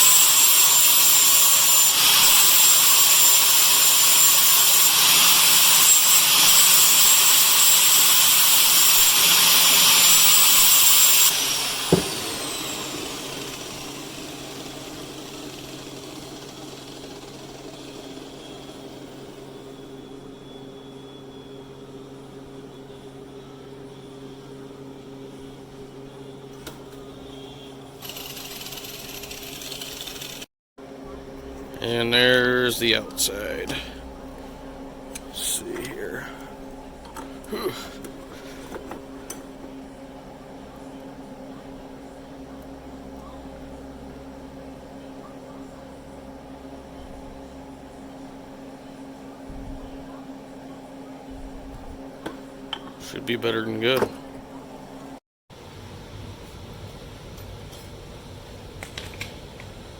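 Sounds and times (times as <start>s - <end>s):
electric grinder whining: 0.0s - 19.5s, 28.0s - 30.5s.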